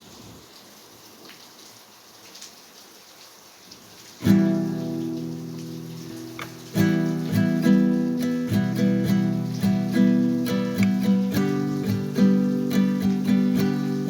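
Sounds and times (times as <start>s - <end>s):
faint hiss: 0.0s - 14.0s
guitar chord strummed: 4.3s - 14.0s.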